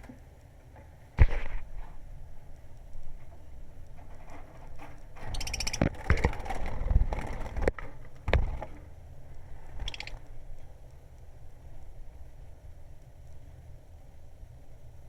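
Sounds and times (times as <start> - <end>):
bird squeak: 5.2 - 5.9, 9.8 - 10.2
lovebird shrill chattering calls: 5.3 - 5.9, 9.8 - 10.3.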